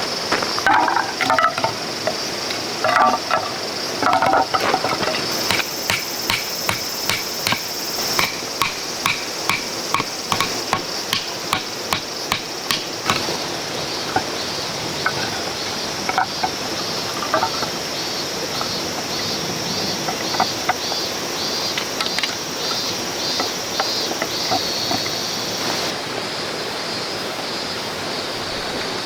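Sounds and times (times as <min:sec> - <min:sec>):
hammer striking metal tent stakes: 0:04.1 - 0:13.4.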